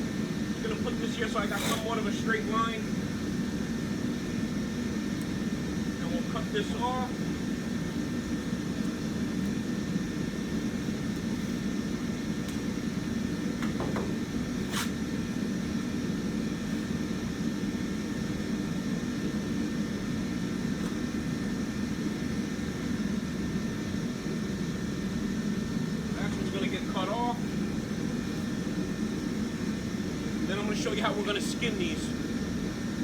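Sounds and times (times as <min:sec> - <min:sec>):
low mechanical drone: 0:23.4 - 0:33.0.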